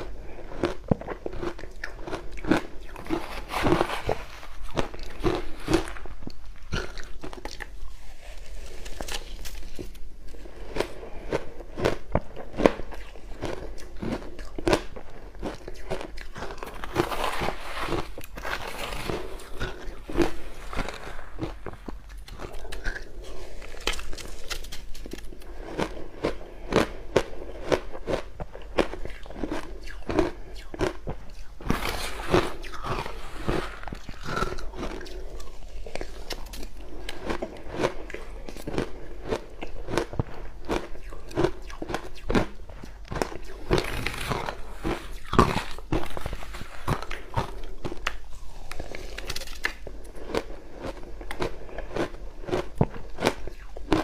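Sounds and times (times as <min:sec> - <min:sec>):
crushed ice crunching: 0:16.5 - 0:25.0, 0:31.6 - 0:36.3.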